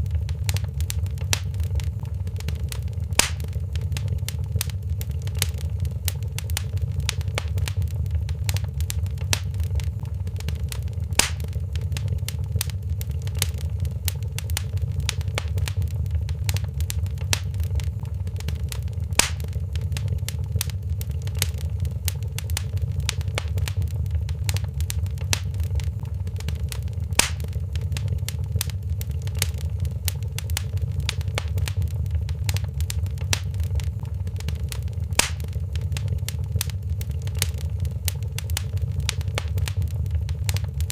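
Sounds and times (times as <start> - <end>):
loud fire pop: 0.0 - 10.2, 11.0 - 12.8, 13.4 - 20.8, 21.4 - 28.8, 35.0 - 40.9
wood fire crackling: 0.0 - 40.9.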